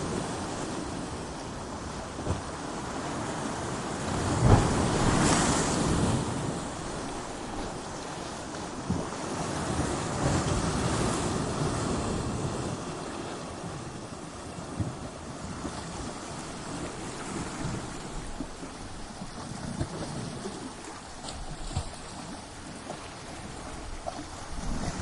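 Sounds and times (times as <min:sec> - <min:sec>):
ocean waves crashing on rocks: 0:00.0 - 0:25.0
water splashes: 0:15.5 - 0:25.0.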